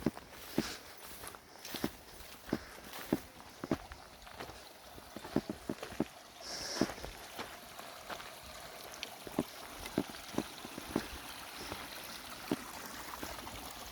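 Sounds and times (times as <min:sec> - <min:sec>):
water running: 0:00.0 - 0:13.9
water gurgling plops: 0:03.1 - 0:13.9.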